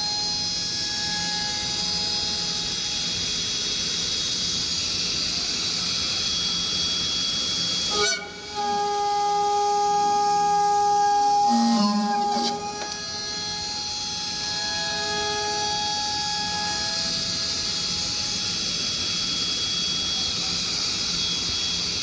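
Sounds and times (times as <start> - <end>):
router spindle whining: 7.5 - 21.7.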